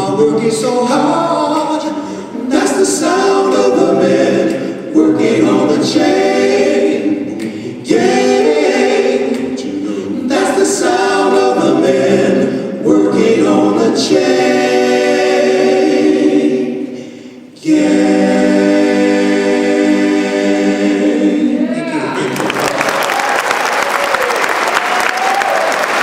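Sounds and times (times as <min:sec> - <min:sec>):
vocal group singing harmony: 0:00.0 - 0:22.4.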